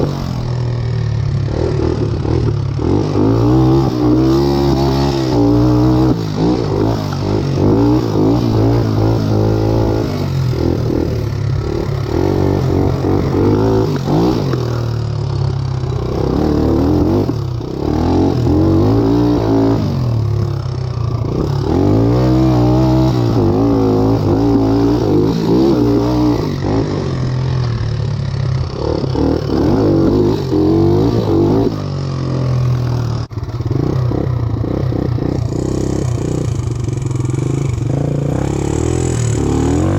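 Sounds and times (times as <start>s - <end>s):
tractor engine running: 32.5s - 39.9s.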